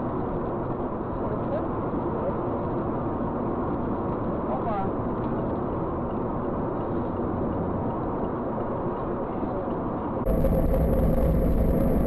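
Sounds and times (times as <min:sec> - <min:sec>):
car road and engine noise: 0:00.0 - 0:12.0
low hum: 0:10.2 - 0:12.0.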